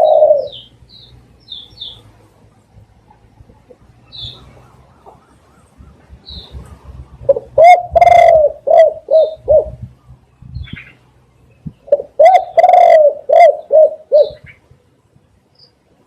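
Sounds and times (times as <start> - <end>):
dove cooing: 0.0 - 0.8, 3.4 - 9.9, 11.7 - 14.6.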